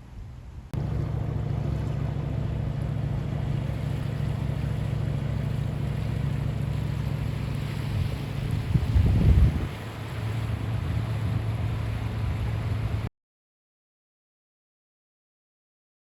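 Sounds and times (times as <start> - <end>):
boat engine droning: 0.0 - 13.1
rushing air and water: 0.0 - 13.1.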